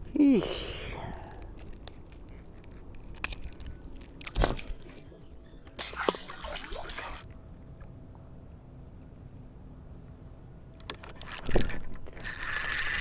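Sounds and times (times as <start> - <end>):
water dripping: 5.7 - 7.3
water splashing beside kayak: 5.8 - 7.3.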